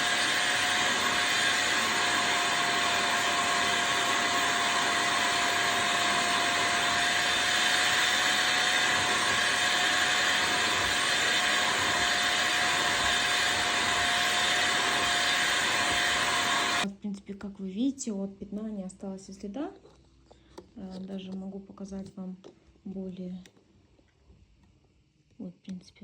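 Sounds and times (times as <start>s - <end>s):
vacuum cleaner suction whine: 0.0s - 16.9s.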